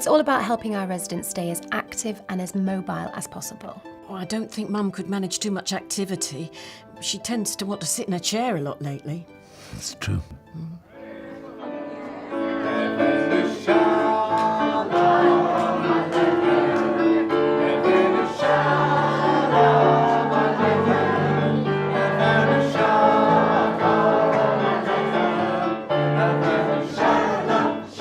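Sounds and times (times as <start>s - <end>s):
instrumental accompaniment: 0.3s - 28.0s
choir singing held notes: 10.9s - 28.0s.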